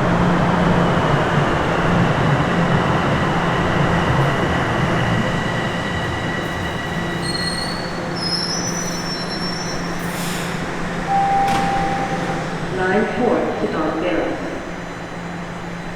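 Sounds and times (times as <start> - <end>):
train rail rumble: 0.0 - 15.9
wheel squeal: 6.0 - 12.5.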